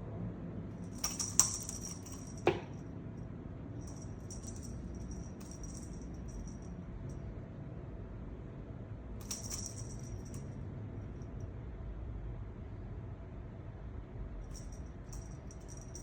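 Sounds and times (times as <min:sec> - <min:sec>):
small bell jingling: 0:00.8 - 0:02.6, 0:03.8 - 0:06.8, 0:09.2 - 0:10.5, 0:14.5 - 0:16.0
sharp knocks: 0:02.1 - 0:02.8.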